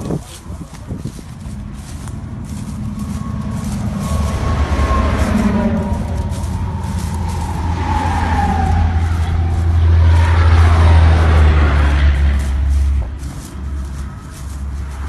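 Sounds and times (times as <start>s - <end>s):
heavy vehicle engine rumbling: 0.0s - 15.0s
faint siren wail: 1.4s - 15.0s.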